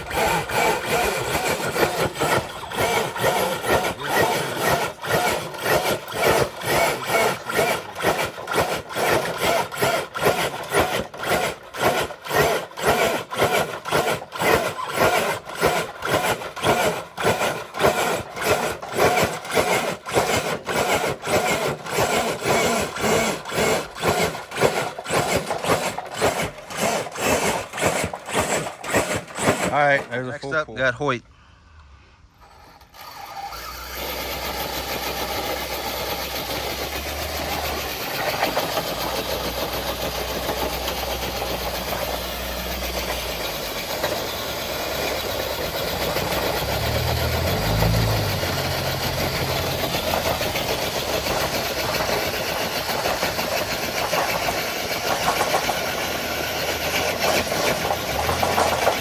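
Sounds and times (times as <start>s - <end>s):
toy truck motor straining: 0.0s - 30.5s, 32.2s - 59.0s
sled scraping along ground: 34.5s - 59.0s.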